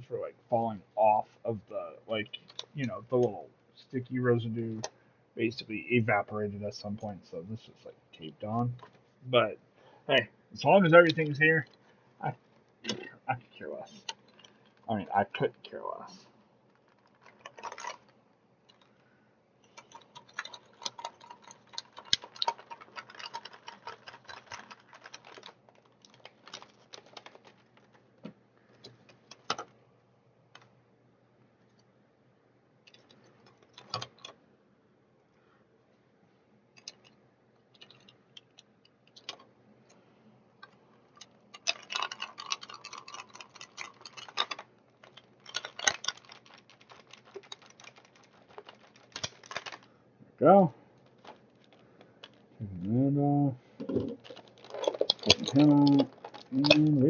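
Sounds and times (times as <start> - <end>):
plastic packaging crinkling: 13.9 - 19.0, 19.6 - 29.7, 40.6 - 50.0, 50.9 - 52.6, 53.7 - 57.0
small plastic clicks: 16.7 - 19.0, 19.6 - 29.8, 36.8 - 39.5, 40.6 - 49.9, 51.0 - 52.5, 53.8 - 56.9.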